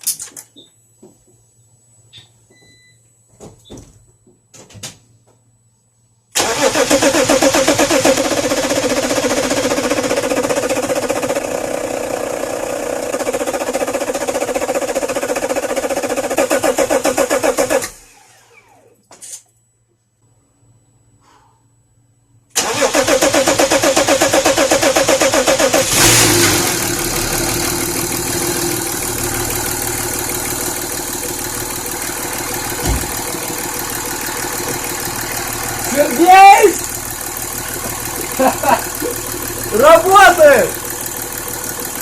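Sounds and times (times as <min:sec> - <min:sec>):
diesel engine cranking on starter: 0:06.4 - 0:18.9, 0:22.6 - 0:42.0.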